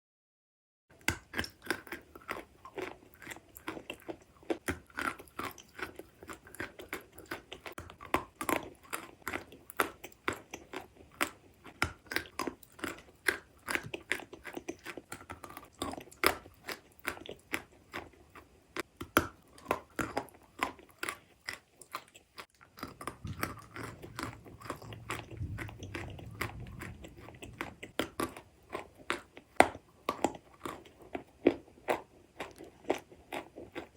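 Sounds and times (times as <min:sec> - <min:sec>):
chewing chalk crunches: 0:01.0 - 0:33.9
low rumble: 0:23.1 - 0:28.0.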